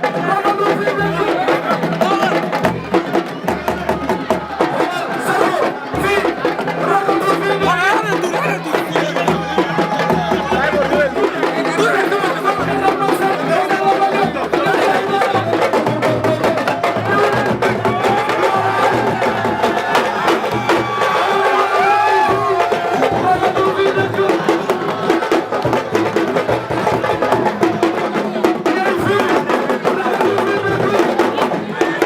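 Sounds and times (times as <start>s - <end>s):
fast dense drumming: 0.0s - 32.0s
voices singing: 0.0s - 32.0s.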